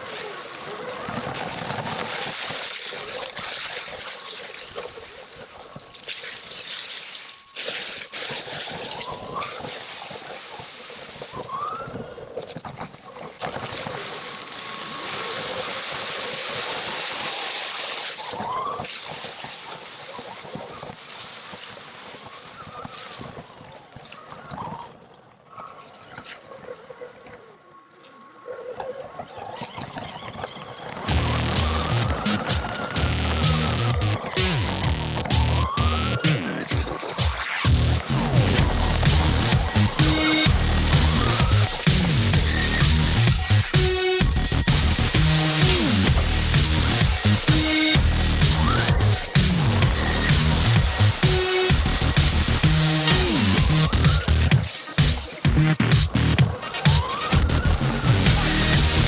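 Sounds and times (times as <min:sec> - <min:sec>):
tyres rushing over rough ground: 0:00.0 - 0:06.6.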